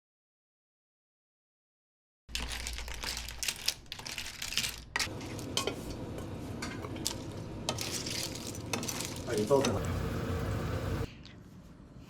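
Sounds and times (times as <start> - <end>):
dishes and cutlery clinking: 5.0 - 9.8
low steady hum: 5.1 - 12.0.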